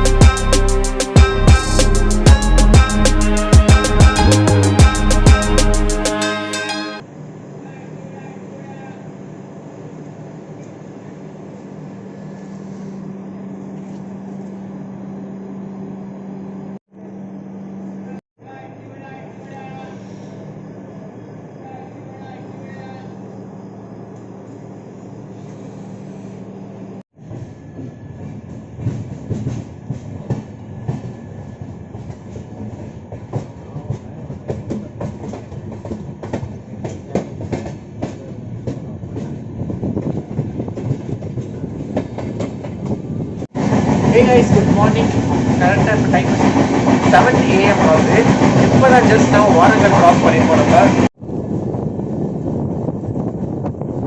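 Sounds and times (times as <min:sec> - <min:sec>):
moving passenger train: 0:00.0 - 0:16.4, 0:19.0 - 0:54.0.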